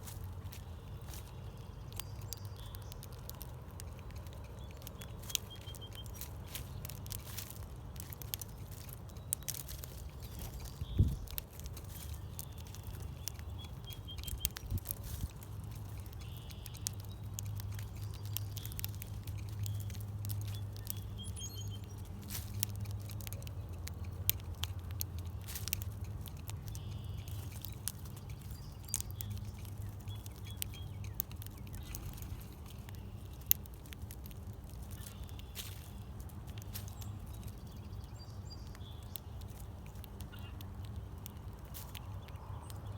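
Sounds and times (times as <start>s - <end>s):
birds pecking and landing: 0.0s - 42.9s
low steady hum: 0.0s - 42.9s
bird chirps: 3.8s - 7.0s, 8.4s - 15.0s, 15.7s - 24.2s, 26.6s - 33.4s.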